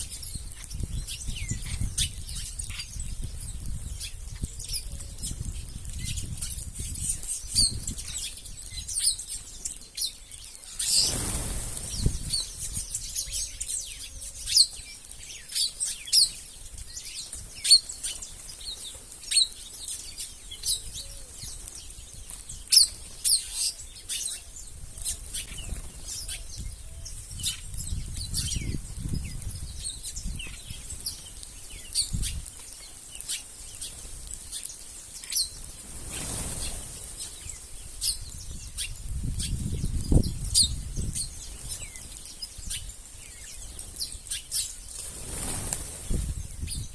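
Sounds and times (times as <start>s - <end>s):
birds chirping: 0.0s - 46.9s
bird wings fluttering: 10.7s - 13.1s, 35.5s - 37.7s, 43.7s - 46.9s.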